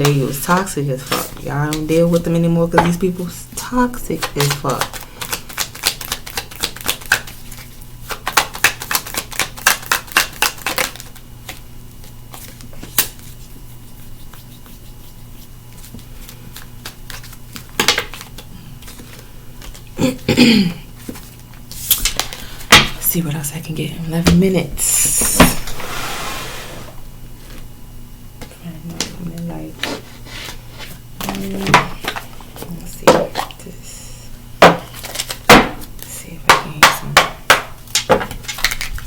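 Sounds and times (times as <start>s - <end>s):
cards being shuffled: 0.0s - 20.0s, 21.0s - 22.5s, 29.2s - 33.5s, 34.8s - 36.1s, 37.8s - 39.0s.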